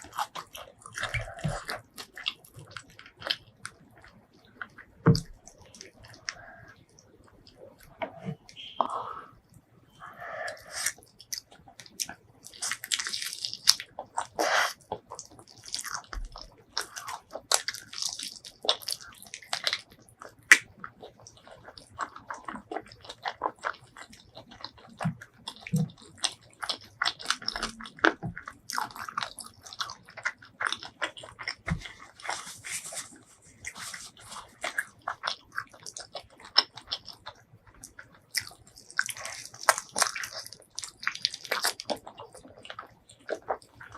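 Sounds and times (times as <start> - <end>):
food crunching: 0.0 - 8.8, 10.1 - 43.9
person biting and chewing: 10.5 - 43.9.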